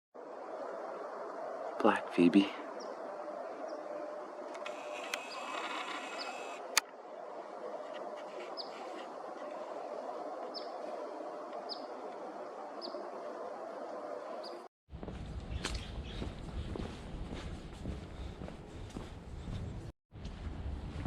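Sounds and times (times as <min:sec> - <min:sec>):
small bird chip calls: 0:04.7 - 0:06.6, 0:08.2 - 0:09.1.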